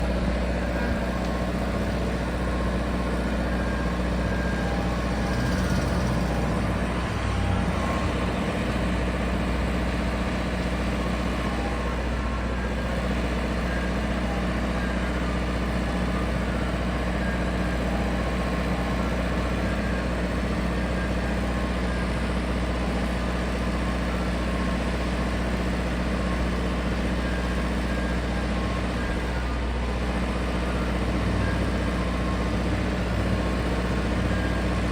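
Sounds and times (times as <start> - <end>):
truck engine idling: 0.0 - 34.9.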